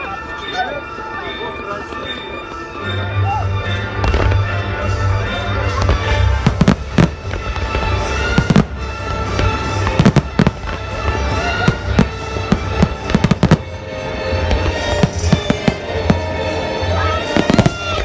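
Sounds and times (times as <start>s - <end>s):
music with held notes: 0.0s - 18.0s
fireworks banging: 3.9s - 18.0s.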